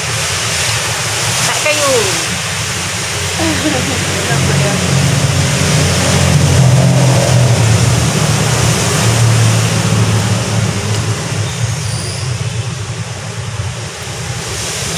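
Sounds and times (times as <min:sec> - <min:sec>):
heavy rain pouring: 0:00.0 - 0:14.9
low rumble: 0:01.0 - 0:11.8.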